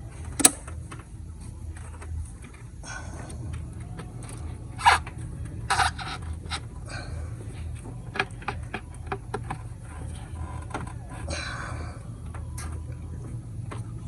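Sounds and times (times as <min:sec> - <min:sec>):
low hum: 0:00.0 - 0:14.0
scraping rustle: 0:01.3 - 0:11.4
hand tools clicking and clanking: 0:01.7 - 0:11.5.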